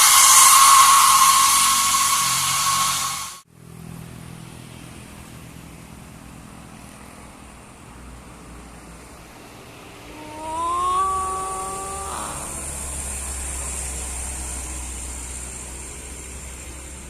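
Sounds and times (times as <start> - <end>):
loud high-pitched whine: 0.0 - 3.4, 10.1 - 17.0
vehicle engine running: 12.4 - 17.0.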